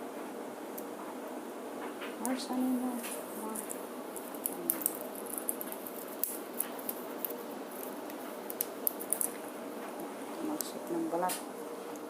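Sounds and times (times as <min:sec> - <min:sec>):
bird beak cracking husks: 0:03.0 - 0:10.0.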